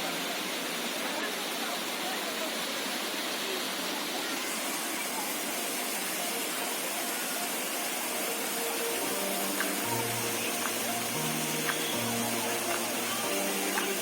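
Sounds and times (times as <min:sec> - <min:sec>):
faint voices of people: 0:00.0 - 0:14.0
waterfall rushing: 0:00.0 - 0:14.0
music: 0:06.2 - 0:14.0.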